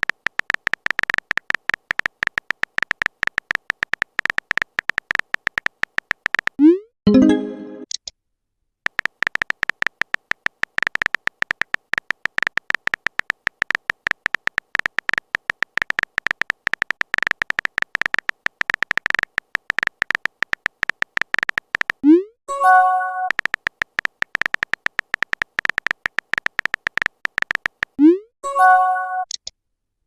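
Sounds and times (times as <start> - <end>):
clicky typing beeps: 8.9 - 28.2, 28.8 - 29.4.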